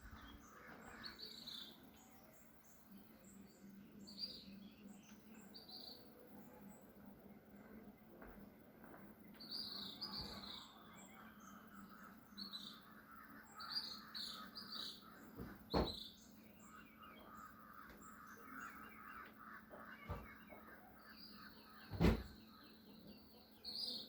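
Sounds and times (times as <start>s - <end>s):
birds chirping: 0.0s - 24.0s
distant bird calls: 0.0s - 24.0s
thump: 15.4s - 16.0s, 21.9s - 22.4s.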